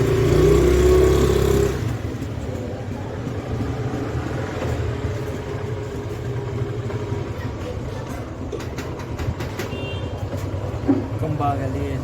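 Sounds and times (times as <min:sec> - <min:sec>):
vehicle passing close by: 0:00.0 - 0:02.3
background traffic noise: 0:00.0 - 0:12.0.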